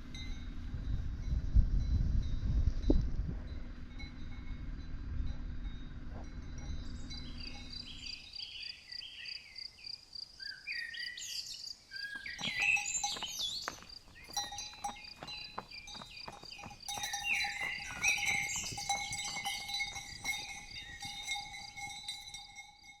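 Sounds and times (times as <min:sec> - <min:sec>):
birds singing: 0:06.6 - 0:21.9
cowbells clanking: 0:12.2 - 0:23.0.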